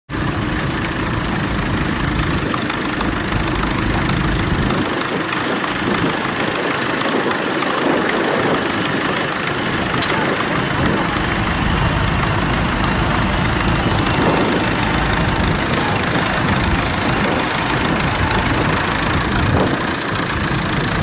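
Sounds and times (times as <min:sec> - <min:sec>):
tractor engine running: 0:00.1 - 0:21.0.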